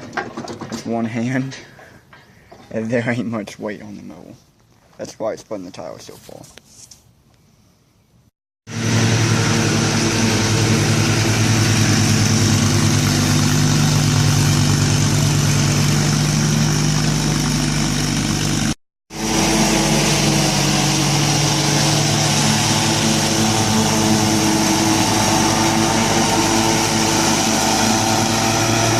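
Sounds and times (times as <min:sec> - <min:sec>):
lawn mower engine running: 0:08.7 - 0:28.9.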